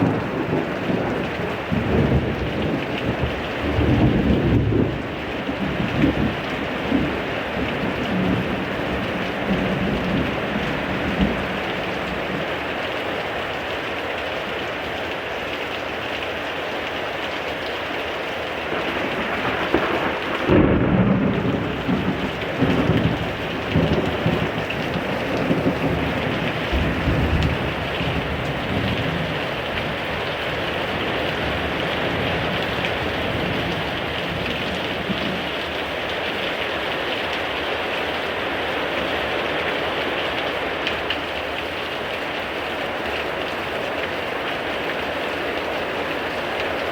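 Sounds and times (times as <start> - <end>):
thunder rumbling: 0.0 - 12.5, 18.6 - 36.2
heavy rain pouring: 0.0 - 46.9.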